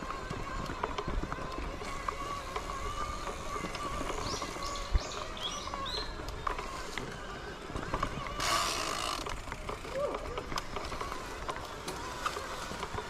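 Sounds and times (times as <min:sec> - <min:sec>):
small birds chirping: 0:03.3 - 0:06.4.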